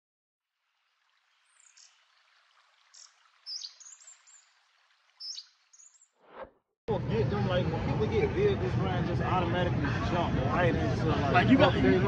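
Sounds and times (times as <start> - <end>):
birds chirping: 2.9 - 4.6, 5.2 - 6.2.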